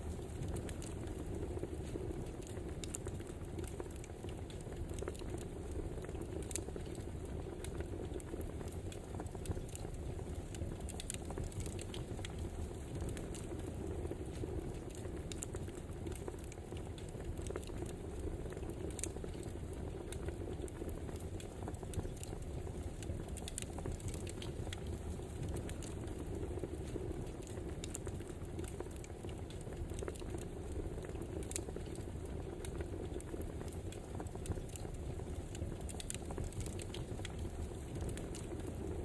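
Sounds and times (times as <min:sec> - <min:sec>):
wood fire crackling: 0:00.0 - 0:39.0.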